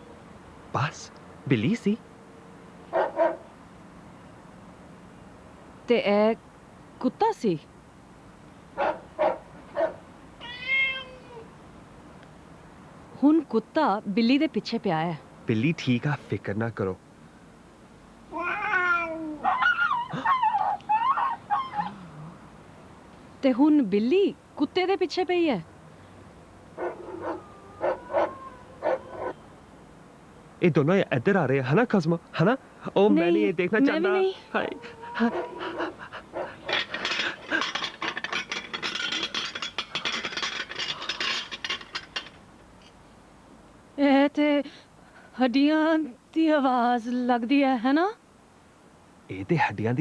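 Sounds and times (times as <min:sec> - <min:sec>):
cat meowing and yowling: 0:10.4 - 0:11.5, 0:18.3 - 0:22.0, 0:26.9 - 0:29.4, 0:33.9 - 0:35.9
rapid rattling and scraping: 0:36.3 - 0:42.9.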